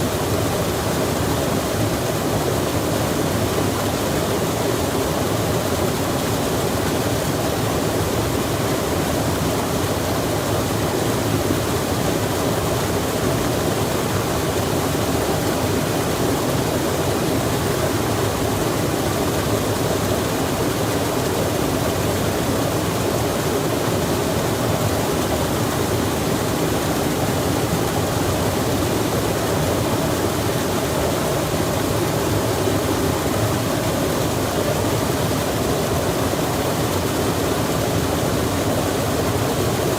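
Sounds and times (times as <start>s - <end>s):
stream rushing: 0.0s - 39.9s.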